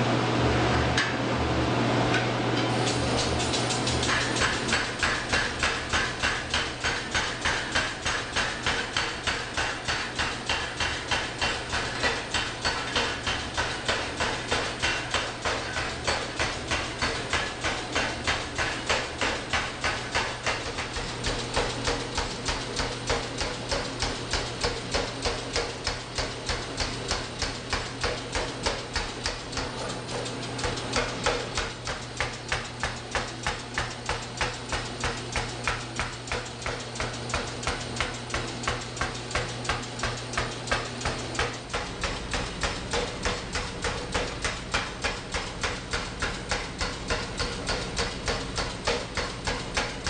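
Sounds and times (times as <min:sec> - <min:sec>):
machine motor humming: 0:00.0 - 0:06.8, 0:35.5 - 0:50.0
power hammer pounding steel: 0:02.7 - 0:50.0.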